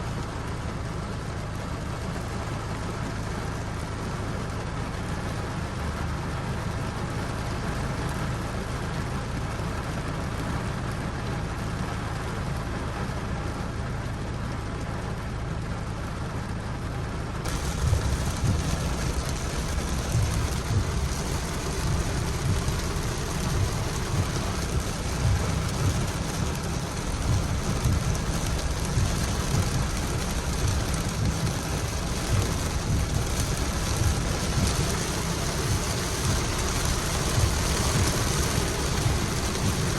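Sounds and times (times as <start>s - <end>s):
rain hiss: 0.2s - 13.8s, 17.4s - 39.9s
constant low hum: 17.4s - 39.9s
low rumbling: 17.4s - 39.9s.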